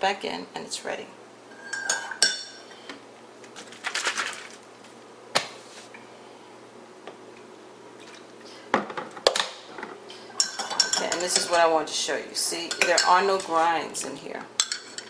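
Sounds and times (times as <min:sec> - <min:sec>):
kitchenware clatter: 0:01.6 - 0:02.7, 0:08.8 - 0:11.7, 0:12.6 - 0:13.6, 0:14.6 - 0:15.0
kitchenware clinks and knocks: 0:01.6 - 0:02.7, 0:10.4 - 0:11.5.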